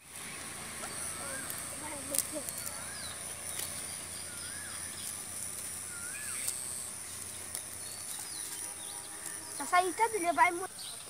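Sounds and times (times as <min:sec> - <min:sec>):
cast net rustling on grass: 0:00.0 - 0:10.6
steady high-pitched hum: 0:00.0 - 0:11.0
bird whistled call: 0:02.5 - 0:03.3, 0:04.2 - 0:05.0, 0:05.9 - 0:06.8.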